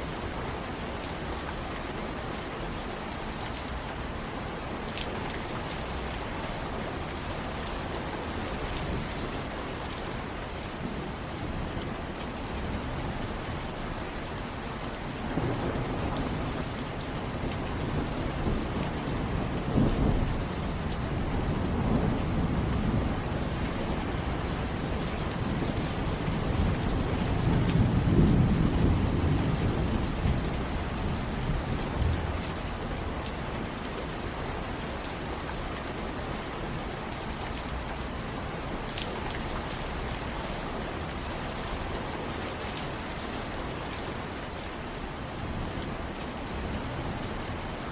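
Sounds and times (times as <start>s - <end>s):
heavy rain: 0.0s - 47.9s
low rumble of thunder: 15.0s - 33.5s.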